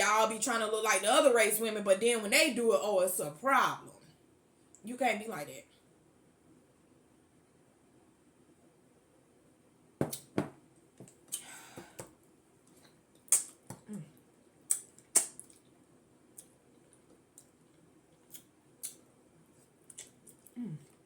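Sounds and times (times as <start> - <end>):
wet mouth smacks while eating: 10.1 - 10.3, 12.7 - 13.9, 14.7 - 15.7, 16.4 - 19.0, 19.9 - 21.0
sharp mouth clicks: 13.2 - 14.0, 14.7 - 15.6, 18.3 - 19.0.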